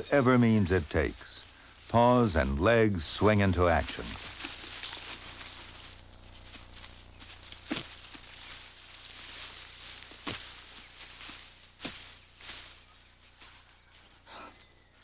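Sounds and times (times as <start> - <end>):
kangaroos scuffling and thudding: 0.0 - 15.0
faint high chirring: 4.5 - 8.8, 11.7 - 15.0.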